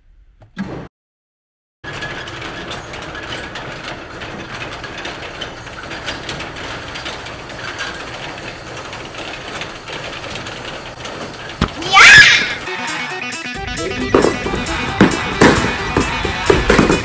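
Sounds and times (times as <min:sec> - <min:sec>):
metal slats rattling: 0:01.8 - 0:12.7.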